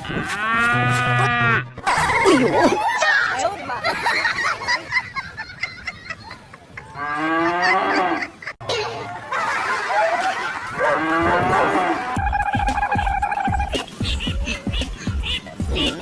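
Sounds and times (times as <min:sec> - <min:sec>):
cow mooing: 0:10.8 - 0:12.3.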